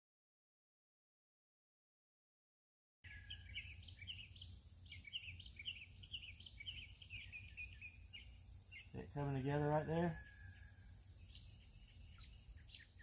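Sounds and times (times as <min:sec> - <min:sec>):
bird chirping: 0:03.0 - 0:13.0
steady low hum: 0:03.1 - 0:13.0.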